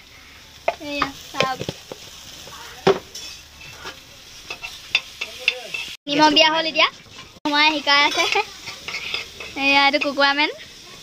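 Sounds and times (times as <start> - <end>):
onions sizzling in oil: 0.0 - 11.0
spatula stirring in a wok: 0.6 - 6.0, 6.8 - 11.0
metal clink on a pan: 4.5 - 6.0, 8.0 - 10.3.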